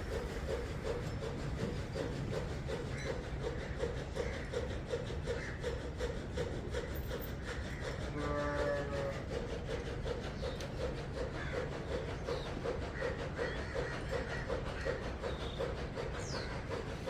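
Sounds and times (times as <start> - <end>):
machine rumbling rhythmically: 0.0 - 17.0.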